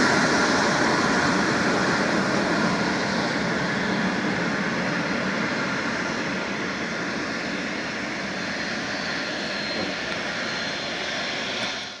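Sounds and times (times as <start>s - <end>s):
jet engines roaring: 0.0s - 12.0s
faint high whine: 7.4s - 12.0s.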